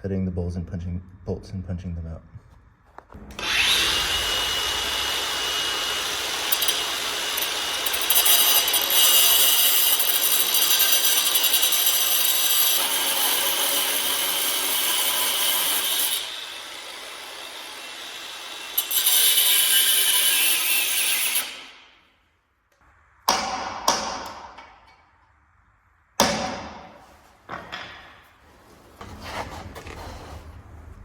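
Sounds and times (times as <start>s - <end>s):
power tool cutting metal bolts: 3.2s - 21.8s.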